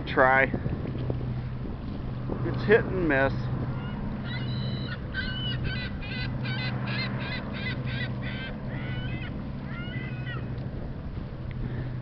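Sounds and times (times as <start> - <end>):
low hum: 0.0 - 12.0
wind noise: 0.0 - 12.0
bird calling repeated notes: 3.8 - 10.5.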